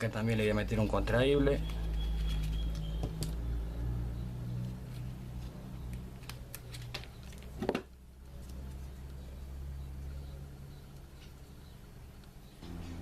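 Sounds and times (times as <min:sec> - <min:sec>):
clicks and rustling of wires: 0:04.9 - 0:09.2.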